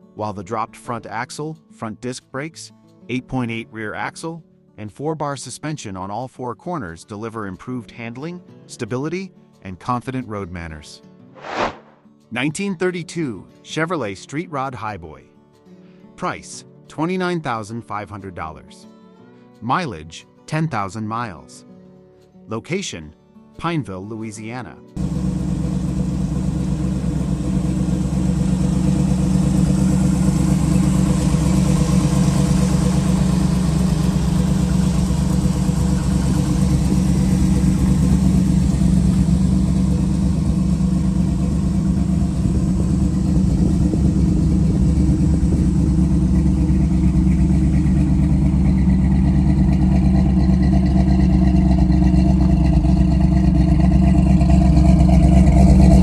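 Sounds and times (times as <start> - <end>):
car engine idling: 25.0 - 56.0.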